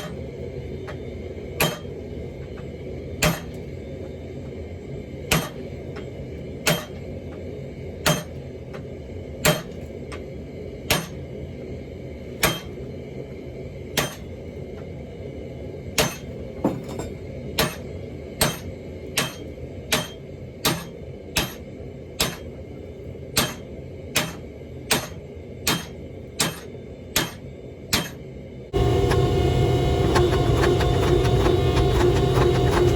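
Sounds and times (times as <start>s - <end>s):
steady low hum: 0.0s - 32.9s
hammer striking steel on anvil: 1.6s - 2.0s, 3.2s - 3.6s, 5.3s - 5.7s, 6.6s - 7.0s, 8.0s - 8.4s, 9.4s - 9.8s, 10.9s - 11.2s, 12.4s - 12.8s, 14.0s - 14.3s, 16.0s - 22.6s, 23.3s - 28.2s.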